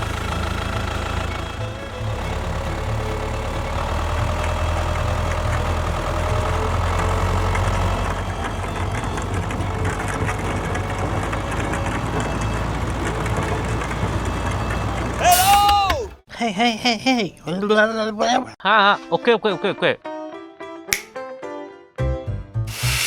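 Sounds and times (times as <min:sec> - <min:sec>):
tractor engine idling: 0:00.0 - 0:16.2, 0:22.7 - 0:23.0.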